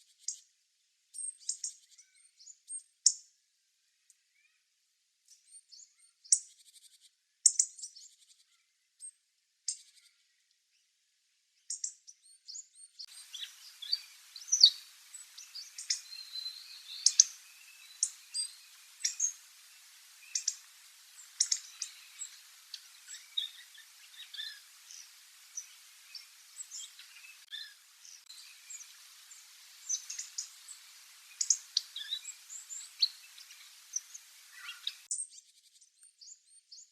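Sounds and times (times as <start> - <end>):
faint hiss: 12.5 - 35.2
bird calls sharp high ticks: 13.0 - 36.1.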